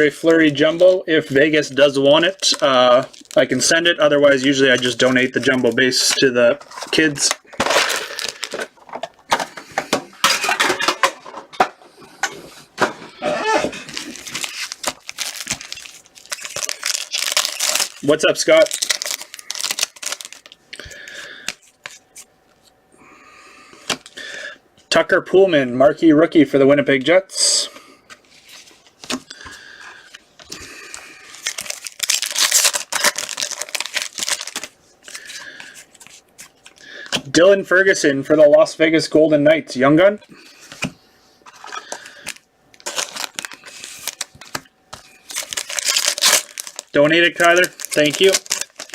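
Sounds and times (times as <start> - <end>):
card packaging crinkling: 0.0 - 9.6, 13.5 - 22.3, 28.2 - 37.2, 41.5 - 48.9.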